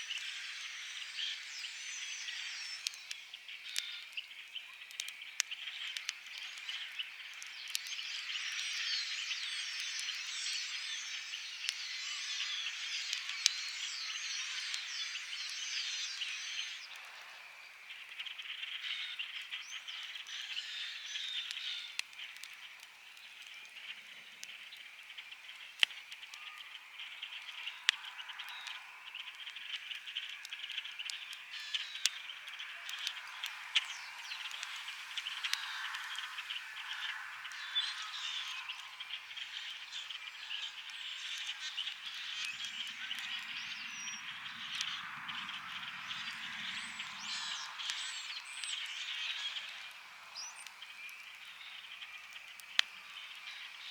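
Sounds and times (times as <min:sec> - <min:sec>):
campfire crackling and popping: 0:00.0 - 0:53.9
frogs calling: 0:24.9 - 0:53.8.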